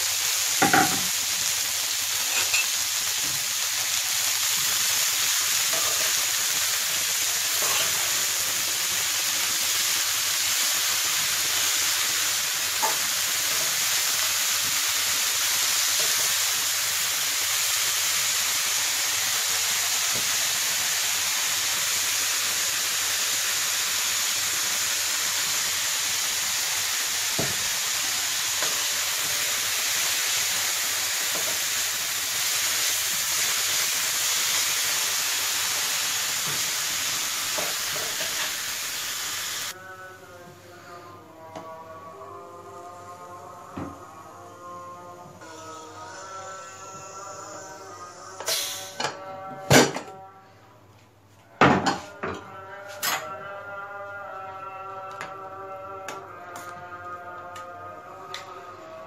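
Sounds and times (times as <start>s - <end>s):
greens sizzling in a frying pan: 0.0s - 39.8s.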